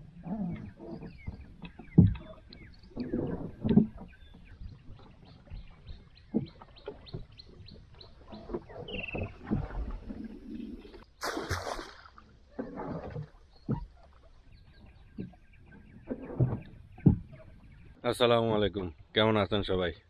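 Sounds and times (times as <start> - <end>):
birds chirping: 0.2 - 11.4, 13.4 - 19.8
dull knocks and thuds: 1.2 - 2.2, 16.1 - 17.4.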